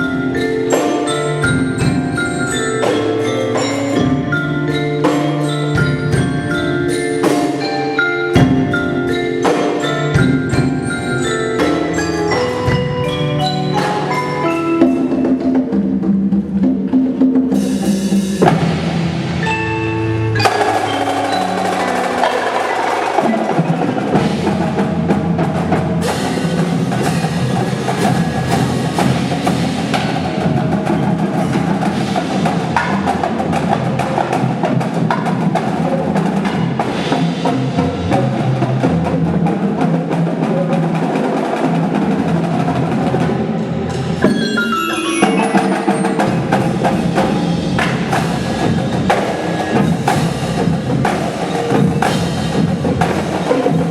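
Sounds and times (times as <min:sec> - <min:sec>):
drumline and mallet percussion: 0:00.0 - 0:53.9
descending run of bell-like notes: 0:43.9 - 0:53.4.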